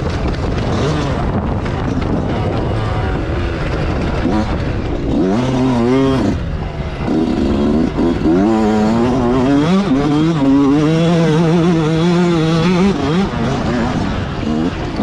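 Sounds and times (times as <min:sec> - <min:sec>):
motocross bike engine revving: 0:00.0 - 0:15.0.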